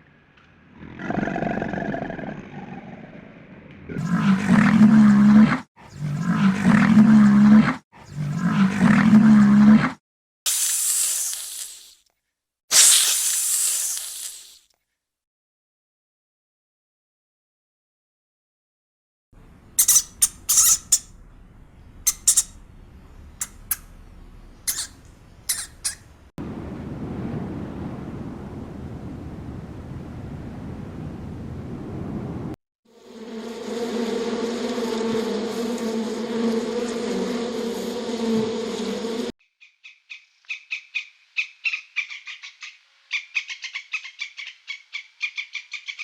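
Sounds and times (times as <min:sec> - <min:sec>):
large animal roaring: 0:00.7 - 0:10.0
animal squeaking: 0:19.6 - 0:26.2.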